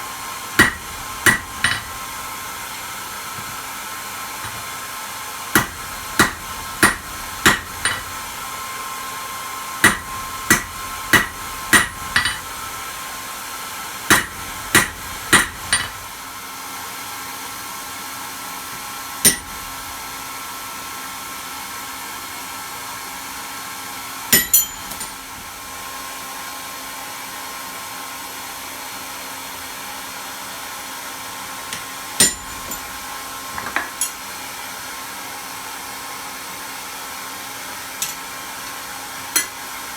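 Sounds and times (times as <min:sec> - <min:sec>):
hammer striking metal on anvil: 0:00.6 - 0:02.2, 0:04.4 - 0:04.7, 0:05.5 - 0:08.5, 0:09.8 - 0:12.8, 0:14.1 - 0:16.2, 0:19.2 - 0:20.0, 0:24.3 - 0:25.3, 0:31.8 - 0:33.0, 0:38.0 - 0:38.2, 0:39.4 - 0:39.6.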